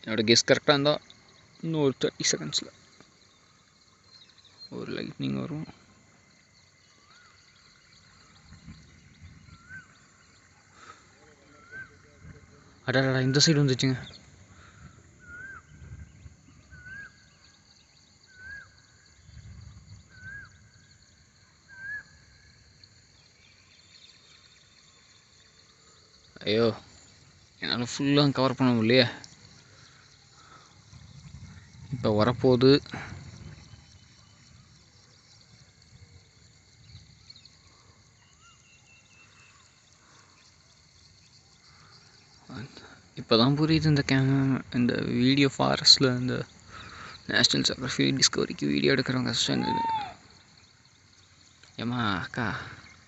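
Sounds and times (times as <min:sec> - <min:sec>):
faint high chirps: 0:00.0 - 0:36.2, 0:36.8 - 0:53.0
high-pitched insect drone: 0:00.0 - 0:53.0
animal chirping call: 0:49.4 - 0:50.3.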